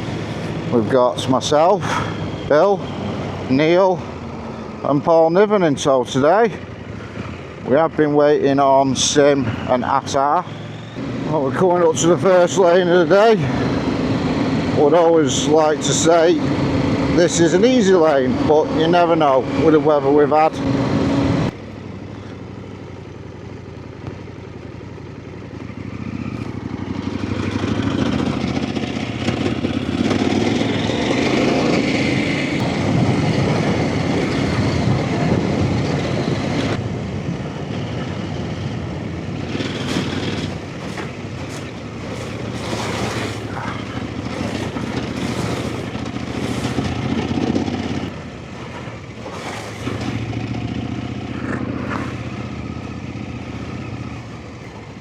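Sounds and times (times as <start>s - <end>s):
motorcycle engine revving: 8.4s - 21.6s, 25.2s - 36.8s, 37.7s - 55.0s.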